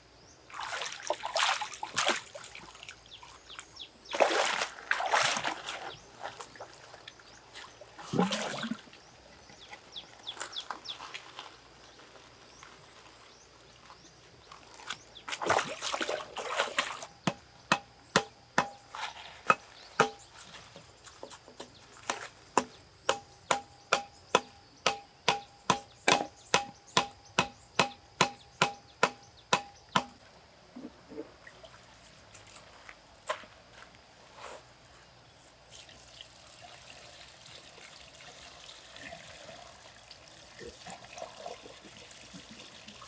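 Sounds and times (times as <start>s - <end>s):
liquid pouring or splashing: 4.1s - 5.9s, 8.0s - 8.9s, 15.3s - 17.1s, 35.7s - 43.0s
knife chopping on wooden board: 17.3s - 18.8s, 19.5s - 20.2s, 22.1s - 30.2s.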